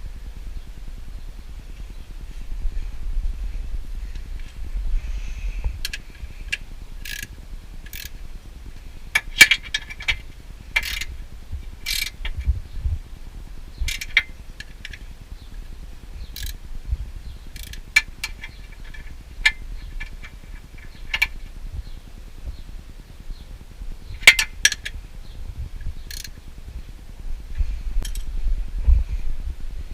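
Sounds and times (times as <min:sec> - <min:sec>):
ratchet wrench clicking: 0:05.8 - 0:08.2, 0:09.1 - 0:10.2, 0:10.8 - 0:11.1, 0:11.8 - 0:12.4, 0:13.8 - 0:15.0, 0:16.3 - 0:16.6, 0:17.5 - 0:21.4, 0:24.2 - 0:25.0, 0:26.1 - 0:26.4, 0:28.0 - 0:28.3.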